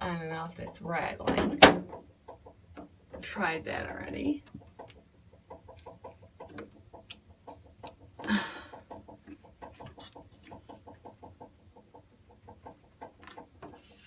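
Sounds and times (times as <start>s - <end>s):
water heater ticking rapidly: 0.0s - 13.9s.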